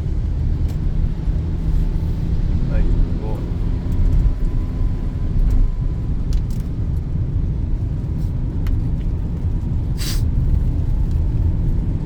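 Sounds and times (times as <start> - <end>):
car engine and road rumble: 0.0 - 12.0
brief hiss: 10.0 - 10.3.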